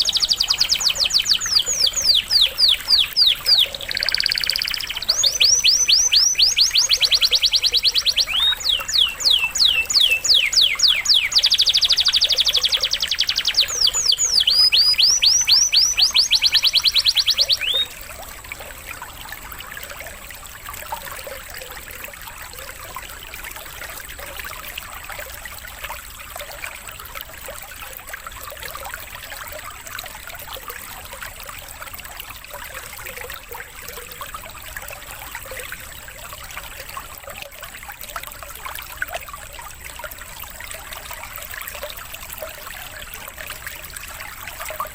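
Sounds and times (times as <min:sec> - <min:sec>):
canary singing trills: 0:00.0 - 0:18.0
trickling water: 0:00.0 - 0:44.9.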